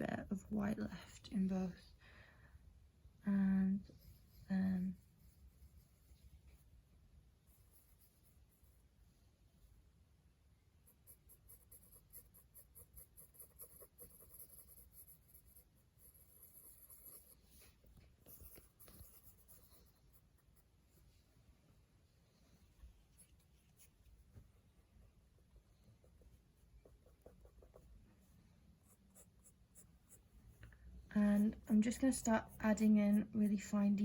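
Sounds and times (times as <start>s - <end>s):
pencil scratching on paper: 7.4s - 8.9s, 10.8s - 21.1s, 25.9s - 30.3s, 31.1s - 34.0s.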